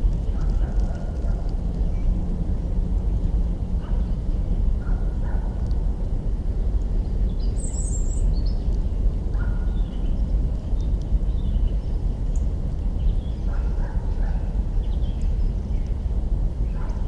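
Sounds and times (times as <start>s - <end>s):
birds calling and chirping: 0.1s - 2.2s.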